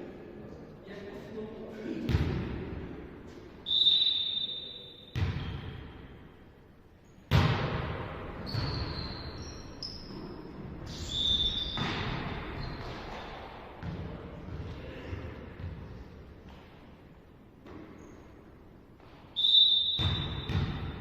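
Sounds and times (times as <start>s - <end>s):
ball hits and knocks: 7.3s - 8.7s
volleyball hit: 7.3s - 8.7s.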